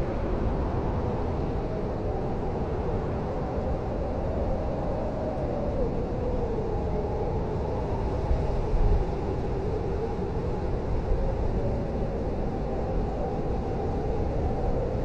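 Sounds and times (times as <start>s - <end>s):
blizzard wind howling: 0.0s - 15.0s.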